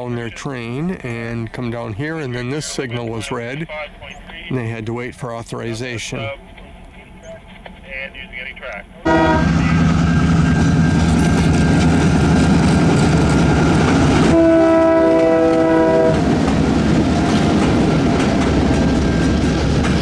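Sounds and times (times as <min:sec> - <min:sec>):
locomotive air horn: 0:09.0 - 0:19.2
wheels on rail: 0:09.0 - 0:20.0
engine rumble: 0:09.1 - 0:14.5, 0:15.2 - 0:20.0.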